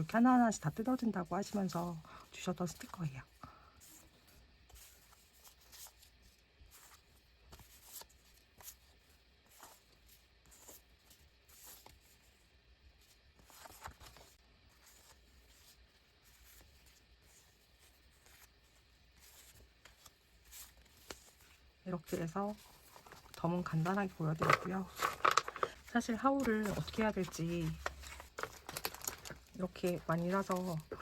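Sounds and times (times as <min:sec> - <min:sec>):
paper sticker sheets rustling: 0:04.6 - 0:31.0.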